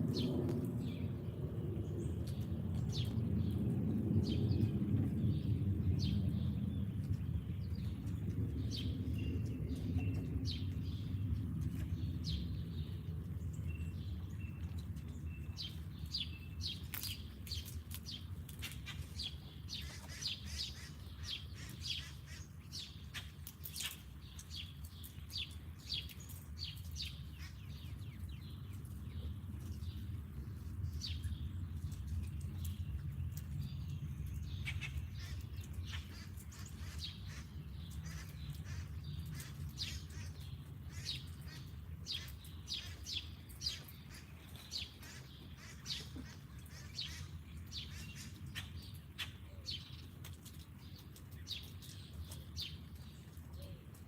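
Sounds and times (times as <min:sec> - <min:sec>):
steady low rumble: 0:00.0 - 0:23.6
songbirds chirping: 0:00.1 - 0:54.0.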